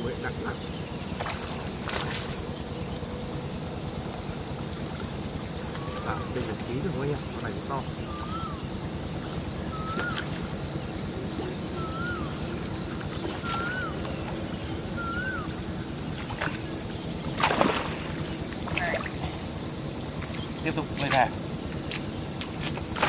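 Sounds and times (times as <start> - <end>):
steady high drone: 0.0 - 22.4
water splash: 1.2 - 2.4, 17.4 - 19.3
bird whistling: 8.0 - 8.7, 9.6 - 10.3, 11.7 - 12.5, 13.4 - 14.3, 14.9 - 15.6.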